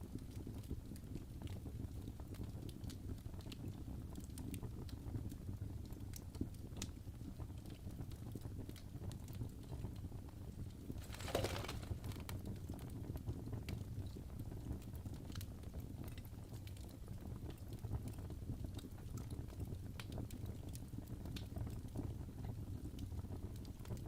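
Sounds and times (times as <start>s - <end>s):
fireplace crackling: 10.5s - 13.2s.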